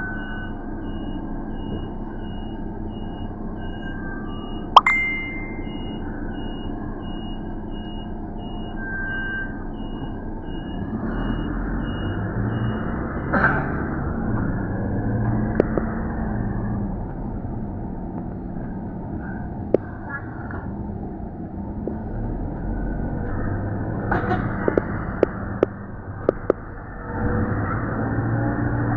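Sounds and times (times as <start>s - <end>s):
electronic beeps: 3.7s - 6.6s
vehicle engine rumble passing: 9.7s - 28.9s.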